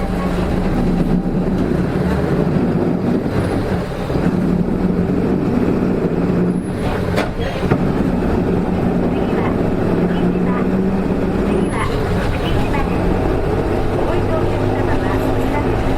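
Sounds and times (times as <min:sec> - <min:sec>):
bus diesel engine droning: 0:00.0 - 0:15.9.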